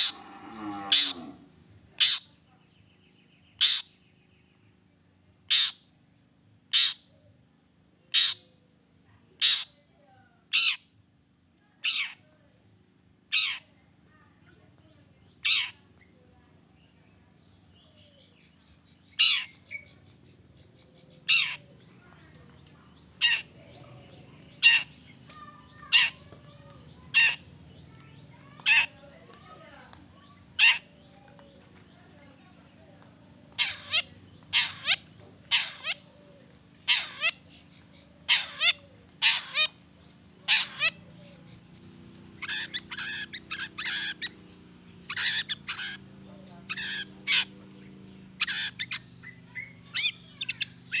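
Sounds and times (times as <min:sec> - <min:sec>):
bird harsh scolding calls: 0:00.0 - 0:01.4, 0:02.0 - 0:02.4, 0:03.5 - 0:04.0, 0:05.5 - 0:05.9, 0:06.7 - 0:07.1, 0:08.1 - 0:08.5, 0:09.4 - 0:09.8, 0:10.5 - 0:10.9, 0:11.8 - 0:12.2, 0:13.3 - 0:13.7, 0:15.3 - 0:15.8, 0:18.0 - 0:20.4, 0:21.0 - 0:21.8, 0:23.0 - 0:29.5, 0:30.2 - 0:31.3, 0:33.5 - 0:36.2, 0:36.8 - 0:51.0.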